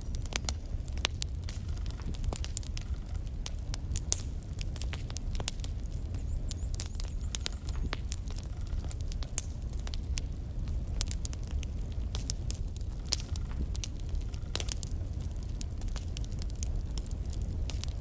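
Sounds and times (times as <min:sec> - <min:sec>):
logs crackling in fireplace: 0:00.0 - 0:18.0.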